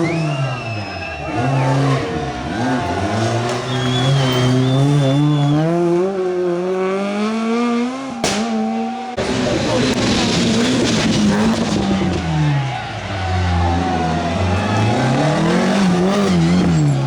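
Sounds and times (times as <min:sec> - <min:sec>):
rally car engine accelerating: 0:00.0 - 0:17.0.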